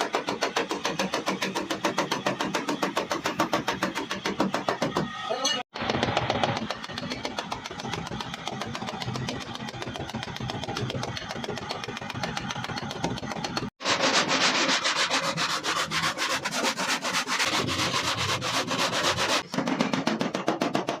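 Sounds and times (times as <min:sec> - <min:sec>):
sanding car panel: 0:00.0 - 0:04.9, 0:07.7 - 0:19.6.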